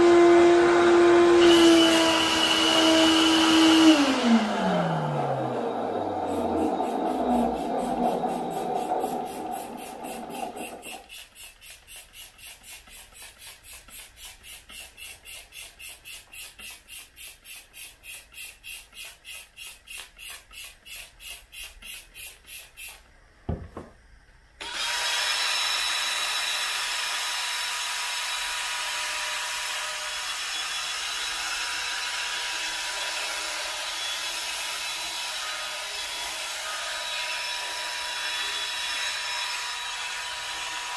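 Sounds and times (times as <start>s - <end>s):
wet vacuum cleaner motor: 0.0s - 23.0s, 24.6s - 40.9s
single thump: 23.5s - 24.0s.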